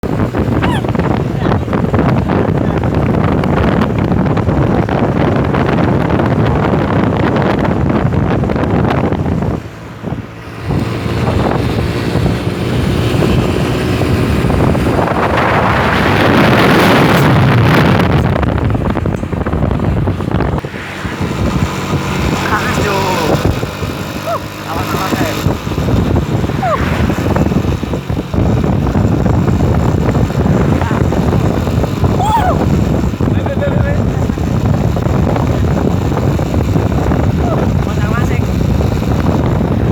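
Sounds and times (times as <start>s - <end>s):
road traffic: 0.0s - 39.9s
wind buffeting microphone: 0.0s - 39.9s
vehicle passing close: 18.8s - 32.6s.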